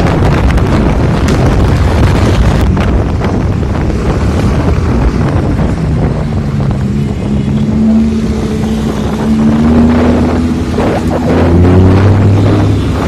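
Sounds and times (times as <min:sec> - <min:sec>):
car engine accelerating: 0:00.0 - 0:13.0
wind buffeting microphone: 0:00.0 - 0:13.0.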